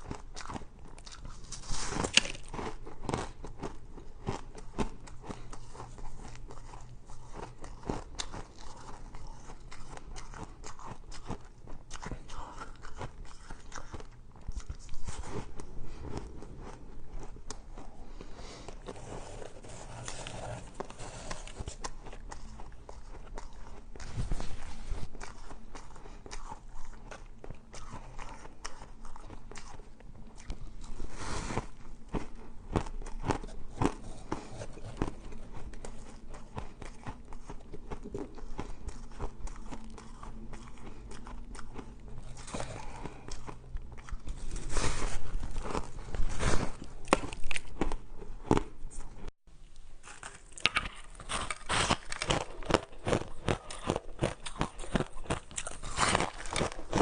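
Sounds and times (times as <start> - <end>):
shaved ice crunching and chewing: 0.0 - 14.2, 50.0 - 57.0.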